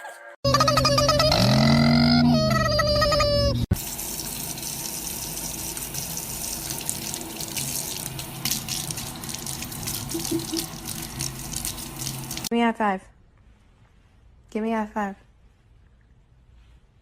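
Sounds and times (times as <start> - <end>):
running water from tap: 3.8 - 12.5.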